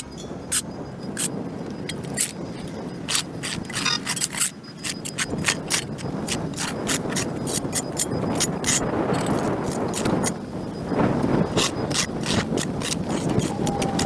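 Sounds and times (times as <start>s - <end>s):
hand tool scraping concrete: 1.9s - 10.4s, 11.5s - 14.0s.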